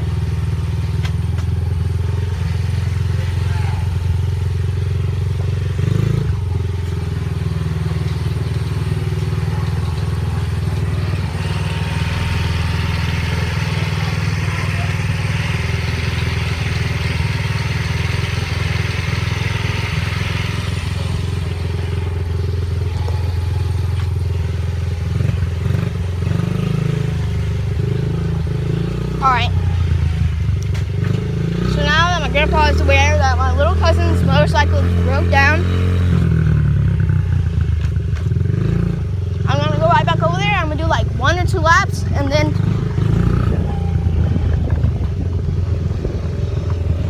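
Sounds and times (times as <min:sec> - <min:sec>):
dirt bike engine running: 0:00.0 - 0:47.0.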